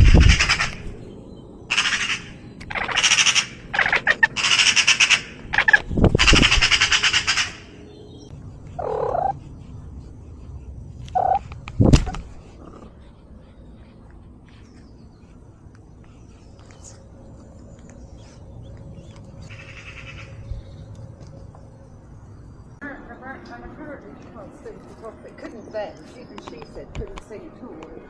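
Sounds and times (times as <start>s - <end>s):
bird squawking: 0.0s - 1.0s, 1.7s - 9.4s, 11.1s - 13.6s, 19.4s - 20.6s.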